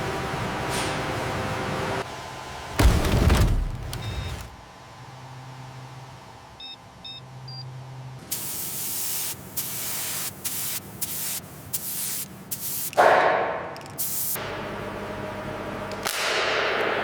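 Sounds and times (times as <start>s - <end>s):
pressurised spray hissing: 8.3s - 12.9s.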